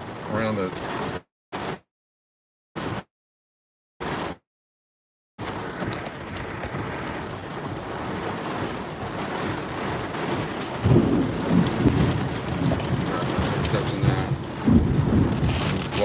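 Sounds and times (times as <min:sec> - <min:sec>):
heavy rain falling: 0:00.0 - 0:01.8, 0:04.0 - 0:04.4, 0:05.4 - 0:16.0
low rumble of thunder: 0:05.5 - 0:16.0.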